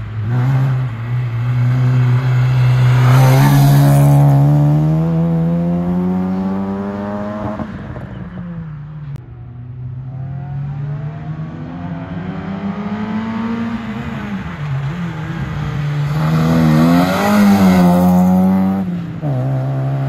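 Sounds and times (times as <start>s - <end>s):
car engine revving hard: 16.1s - 20.0s.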